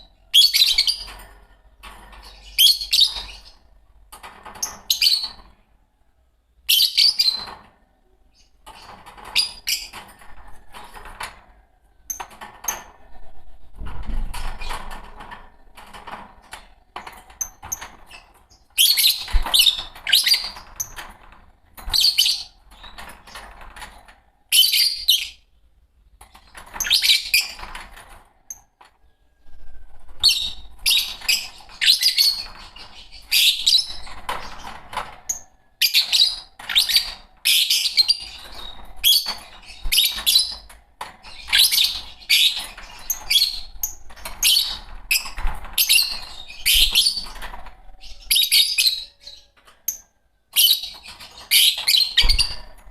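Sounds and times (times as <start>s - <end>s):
lovebirds chirping: 2.2s - 3.8s, 35.4s - 52.9s.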